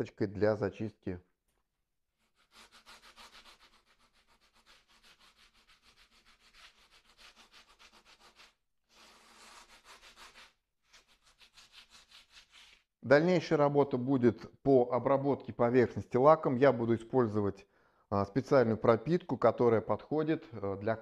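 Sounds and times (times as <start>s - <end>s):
sanding mesh rubbing on mortar: 2.2s - 12.8s.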